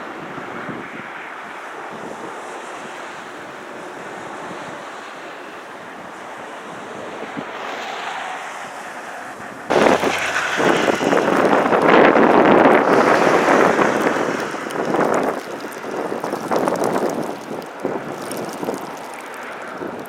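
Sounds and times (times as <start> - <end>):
wind buffeting microphone: 5.8 - 20.0.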